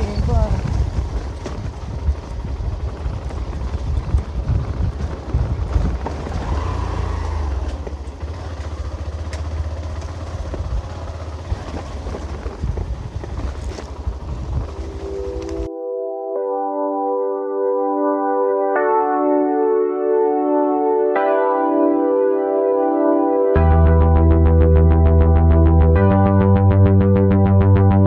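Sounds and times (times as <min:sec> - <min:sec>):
wind rumble on microphone: 0:00.0 - 0:08.3, 0:10.3 - 0:15.7
motorcycle running: 0:00.0 - 0:15.7, 0:23.6 - 0:28.0.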